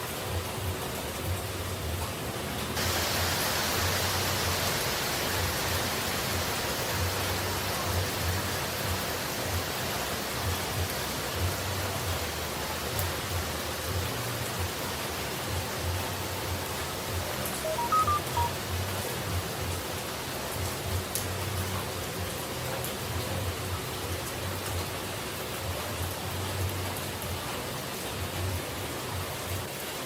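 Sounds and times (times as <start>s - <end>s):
falling water rushing: 0.0s - 30.0s
short electronic beeps: 17.6s - 18.6s.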